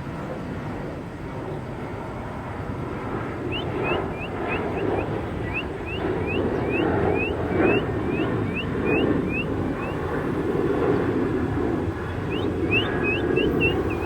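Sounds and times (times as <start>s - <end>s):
steady low rumble: 0.0s - 14.0s
songbird rising chirps: 3.4s - 10.1s, 12.0s - 14.0s.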